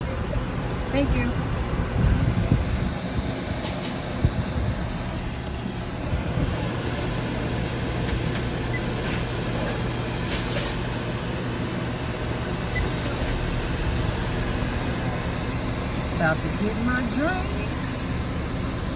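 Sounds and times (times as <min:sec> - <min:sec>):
vehicle engine hum: 0:00.0 - 0:18.9.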